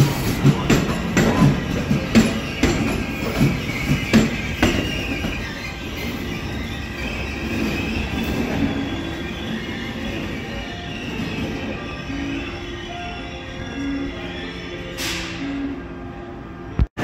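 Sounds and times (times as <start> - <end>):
train wheels clicking over rail joints: 0.0 - 6.2
high wheel squeal: 0.0 - 15.8
train rumble: 0.0 - 16.9.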